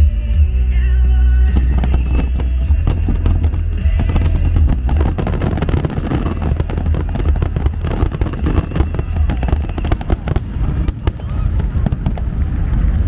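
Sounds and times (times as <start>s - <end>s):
music with heavy bass: 0.0s - 11.2s
crackling firework fountains: 1.5s - 13.0s
fireworks cracking and banging: 1.5s - 13.0s.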